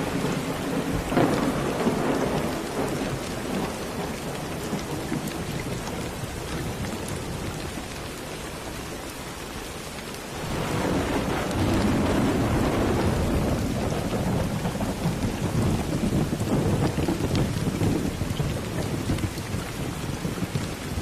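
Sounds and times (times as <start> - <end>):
low rumble of thunder: 0.0 - 8.8, 10.3 - 21.0
steady rain falling: 0.0 - 21.0.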